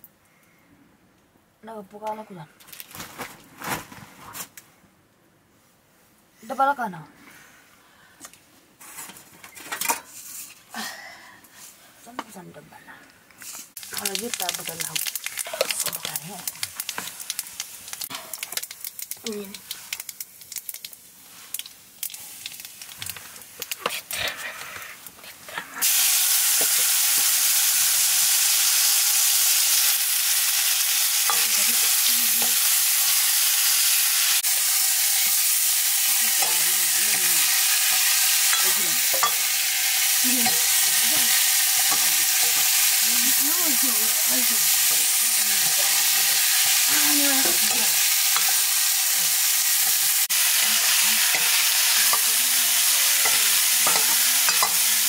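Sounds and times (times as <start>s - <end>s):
vegetables sizzling in hot oil: 13.5s - 55.0s
metal ladle scraping a wok: 35.9s - 43.1s, 43.8s - 55.0s.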